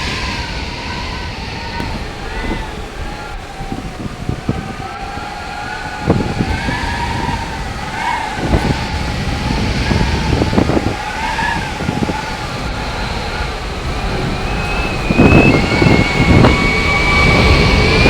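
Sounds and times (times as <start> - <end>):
wind buffeting microphone: 0.0 - 18.0
wind howling: 0.0 - 18.0.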